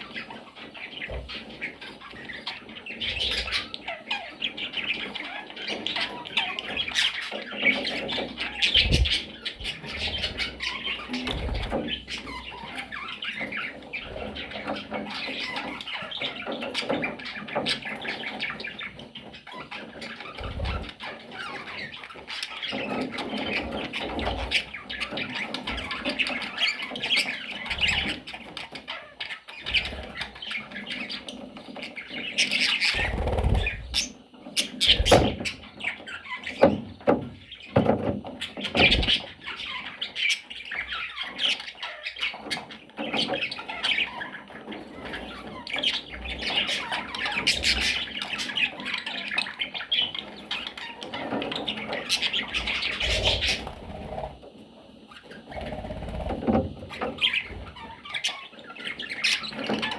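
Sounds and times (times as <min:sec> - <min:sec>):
budgerigars chattering and squawking: 0:00.0 - 0:59.9
loud thumps: 0:08.8 - 0:09.2.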